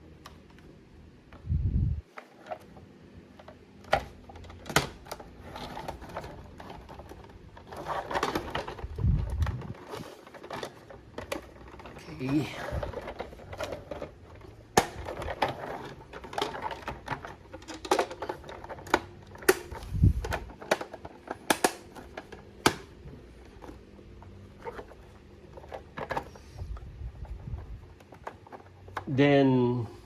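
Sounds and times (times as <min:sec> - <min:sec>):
clicks of hard plastic toy parts: 0:14.8 - 0:22.9.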